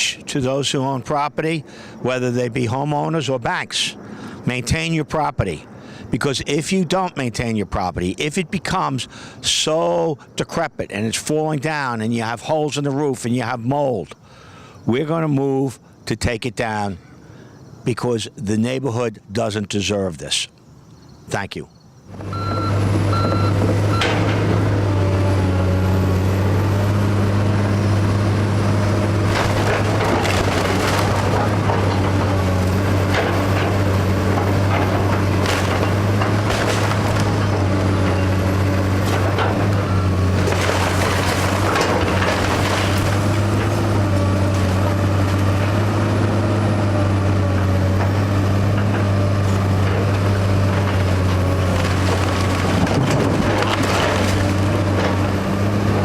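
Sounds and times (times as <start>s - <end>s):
heavy machine engine running: 22.1s - 56.0s
timber crunching and splintering: 22.2s - 56.0s.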